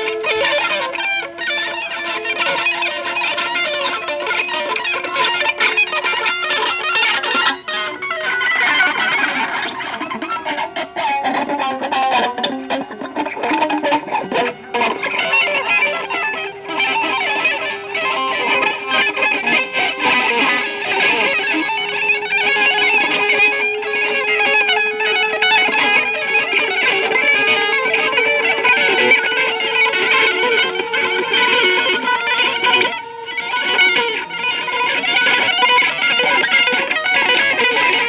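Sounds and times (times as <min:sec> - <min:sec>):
guitar plucked and scraped: 0:00.0 - 0:38.0
long held rising violin tone: 0:00.0 - 0:38.0.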